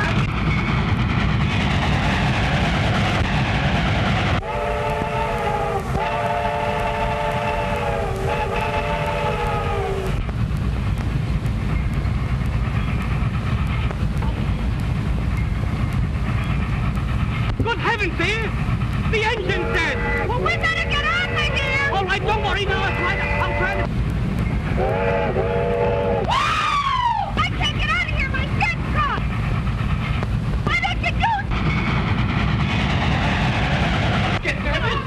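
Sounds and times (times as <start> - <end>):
train rumbling: 0.0 - 35.0
train whistle blasts: 4.4 - 10.2, 19.5 - 23.9, 24.8 - 26.9.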